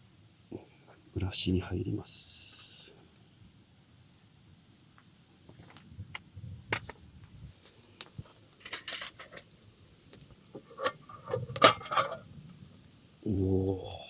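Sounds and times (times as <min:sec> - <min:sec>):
metal cookware clicks and knocks: 0:08.6 - 0:09.4.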